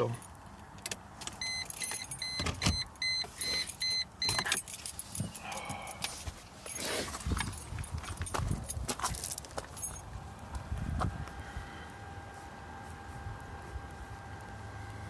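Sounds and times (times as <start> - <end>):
keys jangling: 1.5 - 10.1.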